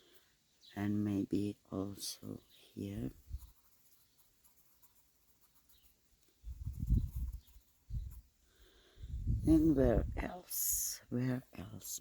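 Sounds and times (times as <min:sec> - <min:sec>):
pencil scratching on paper: 0:02.9 - 0:08.4.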